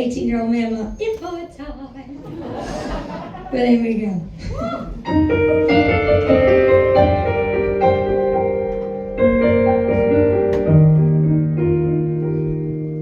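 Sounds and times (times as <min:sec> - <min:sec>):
piano playing slow chords: 0:05.0 - 0:13.0.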